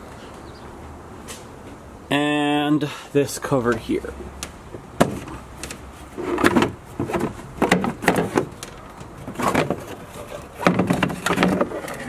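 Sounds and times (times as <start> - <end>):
plastic trim scraping and knocking: 5.0 - 12.0.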